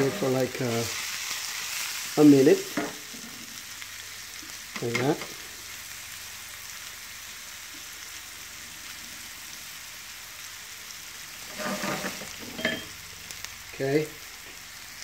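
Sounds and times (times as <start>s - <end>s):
vegetables sizzling in a frying pan: 0.0s - 15.0s.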